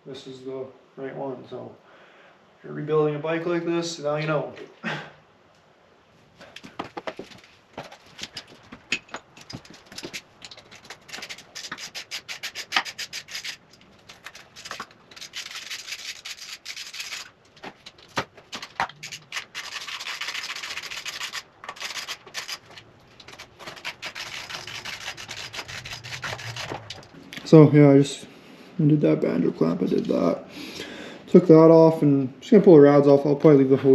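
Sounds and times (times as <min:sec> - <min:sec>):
hand tools clicking and knocking: 0:06.6 - 0:27.2
rasping scraping: 0:07.2 - 0:27.2.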